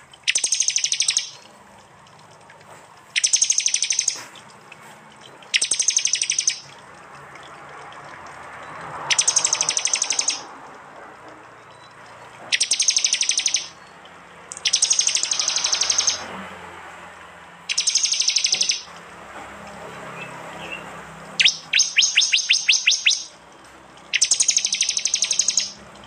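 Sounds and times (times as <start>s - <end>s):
songbird chattering call: 0.3s - 1.4s, 3.2s - 4.3s, 5.5s - 6.7s, 9.1s - 10.5s, 12.5s - 13.8s, 14.5s - 16.2s, 17.7s - 18.9s, 21.4s - 23.3s, 24.2s - 25.8s.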